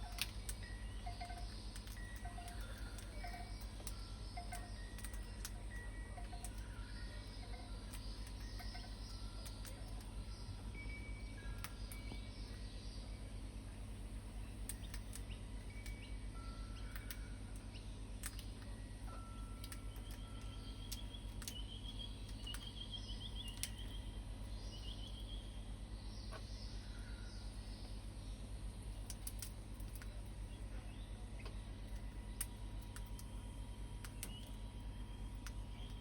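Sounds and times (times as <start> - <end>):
birds chirping: 0.0 - 36.0
low hum: 0.0 - 36.0
sharp clicks: 14.6 - 16.1, 18.2 - 18.7, 19.5 - 22.8, 29.0 - 30.2, 34.0 - 34.7.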